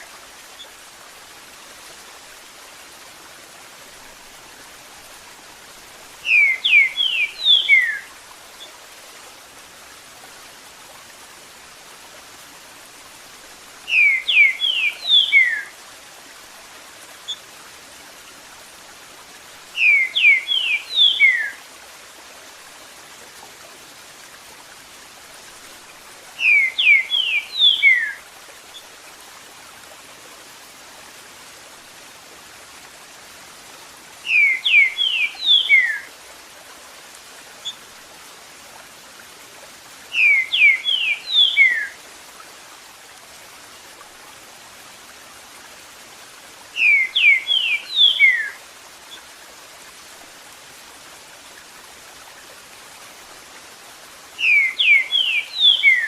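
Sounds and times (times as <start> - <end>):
running water: 0.0 - 56.0
bird singing whistled notes: 6.2 - 8.1, 13.9 - 15.7, 19.8 - 21.6, 26.4 - 28.2, 34.3 - 36.1, 40.1 - 42.0, 46.8 - 48.6, 54.4 - 56.0.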